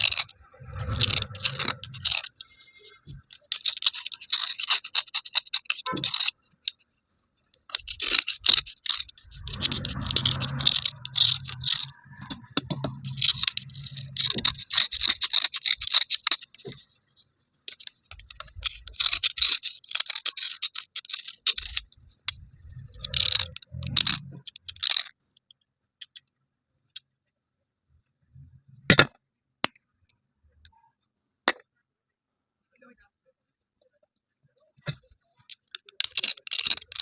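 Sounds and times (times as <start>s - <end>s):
slate pencil pieces scraping: 0.0s - 6.9s, 7.5s - 25.1s, 35.0s - 37.0s.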